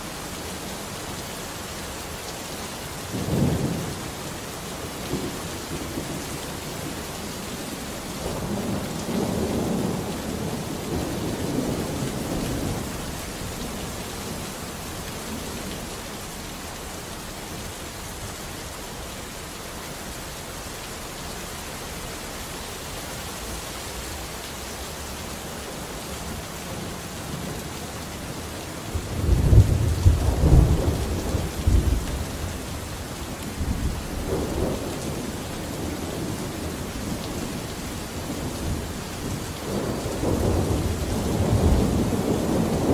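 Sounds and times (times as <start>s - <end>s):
steady rain falling: 0.0s - 42.9s
thunder rumbling: 3.1s - 20.0s, 25.6s - 42.9s.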